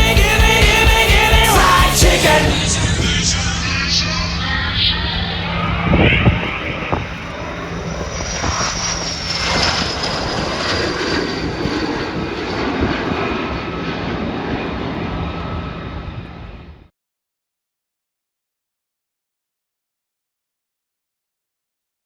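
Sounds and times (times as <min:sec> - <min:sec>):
military plane flying past: 0:02.2 - 0:16.9.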